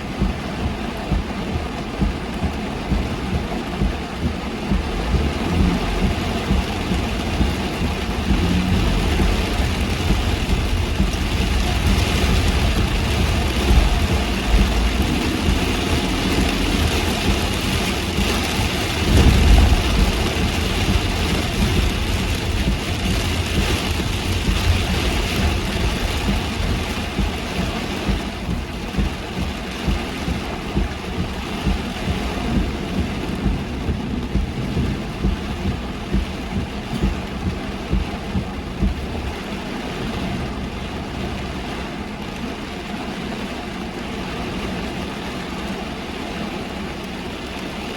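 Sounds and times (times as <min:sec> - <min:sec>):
car engine running: 0:00.0 - 0:47.9
heavy rain on a car: 0:00.0 - 0:47.9
low rumble: 0:00.0 - 0:47.9
tyre hiss on wet road: 0:05.0 - 0:29.2.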